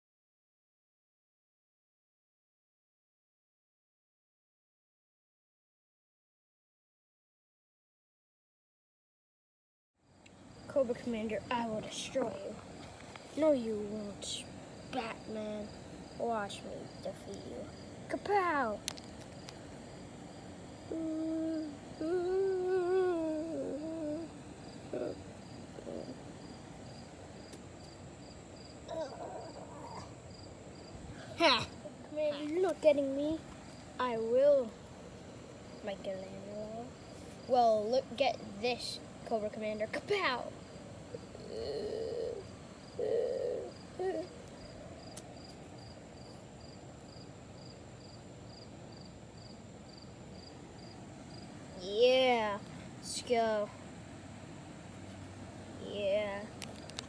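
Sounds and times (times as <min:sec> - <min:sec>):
insect chirping: 0:10.0 - 0:57.0
faint child vocal noises: 0:20.8 - 0:26.4, 0:28.9 - 0:30.2, 0:39.9 - 0:44.4
child humming: 0:20.9 - 0:26.2, 0:28.9 - 0:30.2, 0:41.1 - 0:44.4.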